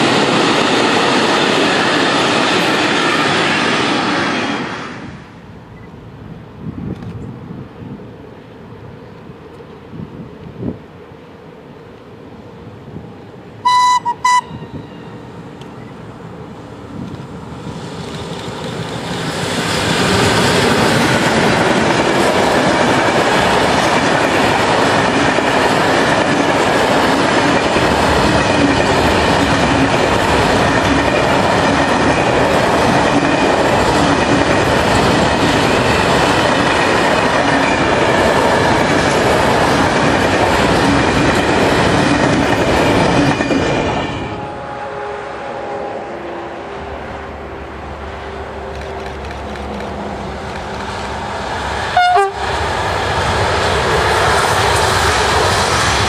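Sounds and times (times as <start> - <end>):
train wheels rushing on rails: 0.0 - 11.6, 12.8 - 56.0
train horn blasts: 13.6 - 15.2, 44.2 - 47.2, 52.0 - 52.5.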